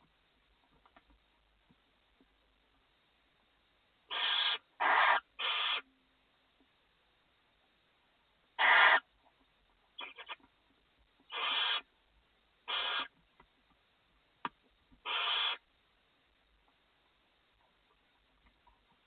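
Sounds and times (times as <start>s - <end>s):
owl chicks hissing calls: 4.1s - 5.9s, 8.6s - 9.1s, 10.0s - 10.4s, 11.3s - 11.9s, 12.6s - 13.2s, 15.0s - 15.6s.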